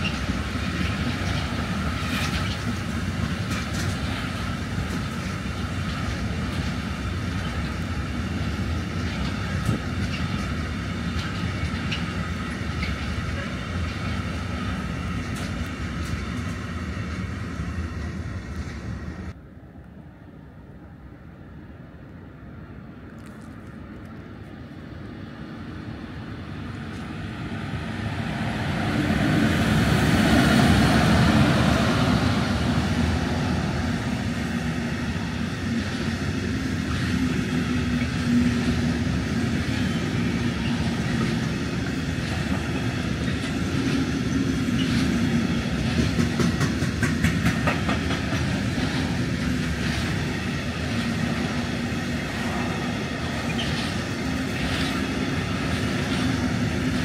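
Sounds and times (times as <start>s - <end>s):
wheels clicking over rail joints: 0.0s - 17.2s, 30.6s - 57.0s
train rumbling on rails: 0.0s - 57.0s.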